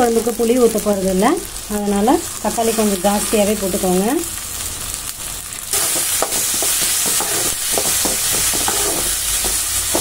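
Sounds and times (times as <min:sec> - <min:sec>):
vegetables frying in hot oil: 0:00.0 - 0:10.0
spatula scraping a pan: 0:05.7 - 0:10.0.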